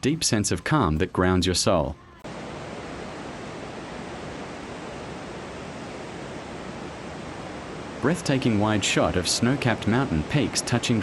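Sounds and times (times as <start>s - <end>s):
steady rushing noise: 2.3s - 11.0s.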